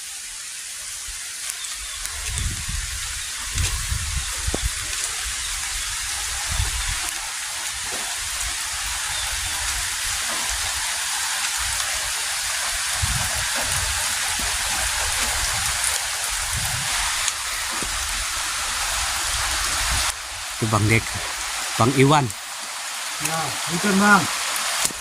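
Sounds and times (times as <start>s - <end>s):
heavy rain falling: 0.0s - 25.0s
wind gusting on microphone: 2.0s - 10.8s, 11.5s - 22.3s.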